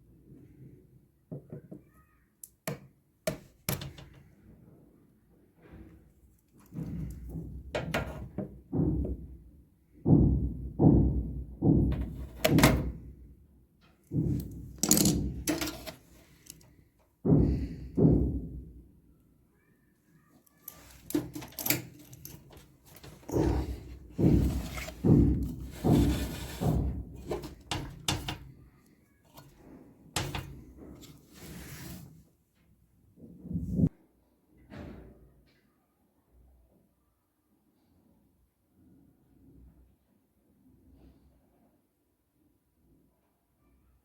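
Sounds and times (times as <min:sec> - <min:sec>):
heavy thumps and knocks: 0:06.7 - 0:13.1, 0:14.1 - 0:18.8, 0:20.8 - 0:28.6, 0:30.2 - 0:31.2.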